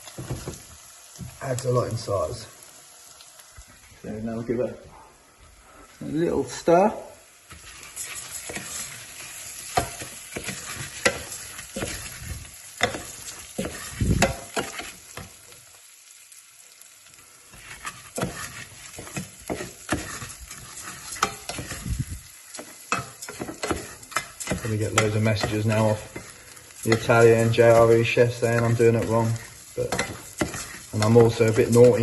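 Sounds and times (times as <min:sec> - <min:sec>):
rice sizzling in a pan: 0:00.0 - 0:32.0
utensil scraping and tapping pan: 0:07.5 - 0:12.2, 0:12.8 - 0:15.4, 0:17.6 - 0:21.8, 0:22.5 - 0:32.0.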